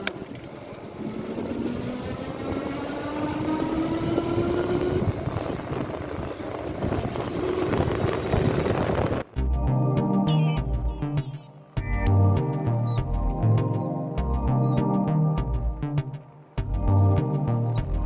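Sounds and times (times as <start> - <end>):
wind buffeting microphone: 0.9 - 9.3.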